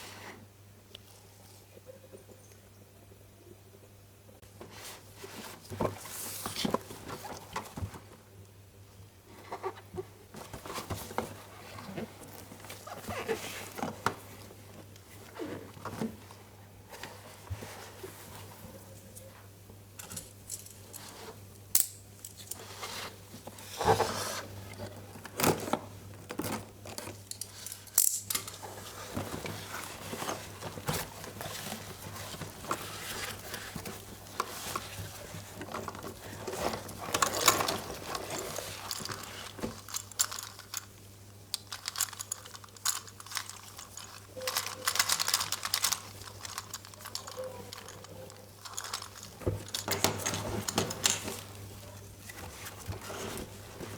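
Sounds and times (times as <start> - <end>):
wrapping crinkling and tearing: 28.6 - 51.6
plastic parts clicking: 35.7 - 51.6.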